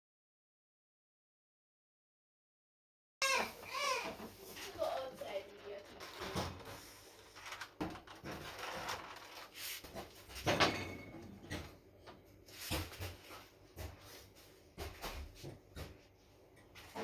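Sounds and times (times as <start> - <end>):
household items clattering: 3.5 - 14.0.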